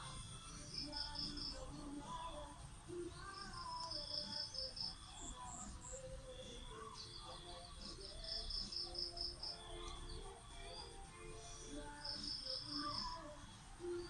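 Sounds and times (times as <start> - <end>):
faint background music: 0.0 - 14.0
high-pitched bird chirps: 3.2 - 14.0.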